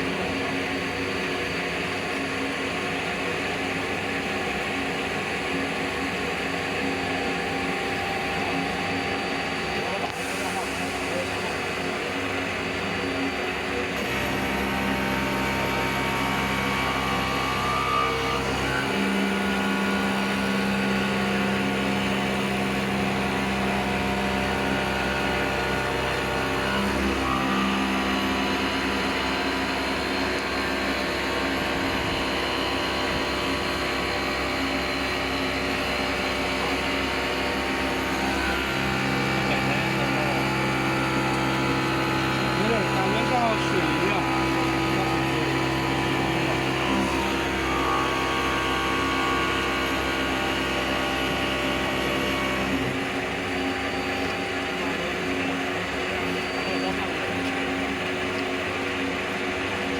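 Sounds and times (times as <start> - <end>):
router machine humming: 0.0 - 59.9.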